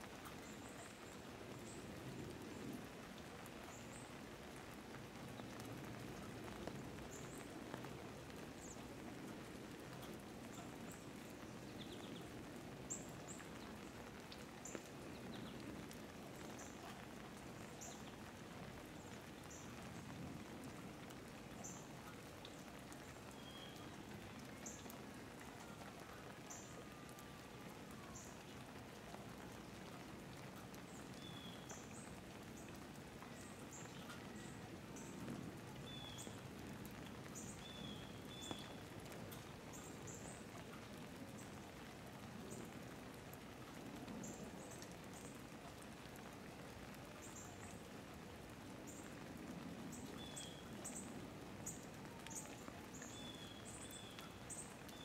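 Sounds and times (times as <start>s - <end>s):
light rain pattering: 0.0s - 55.0s.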